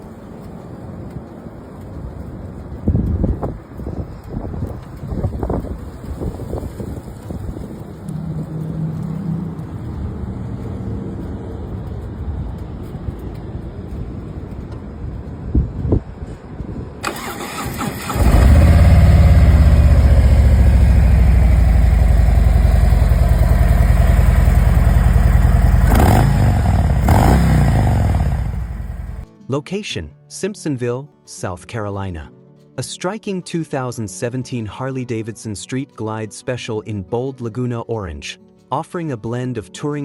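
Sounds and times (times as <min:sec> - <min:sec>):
wind noise on microphone: 0:00.0 - 0:22.2
motorcycle engine idling: 0:17.1 - 0:29.2.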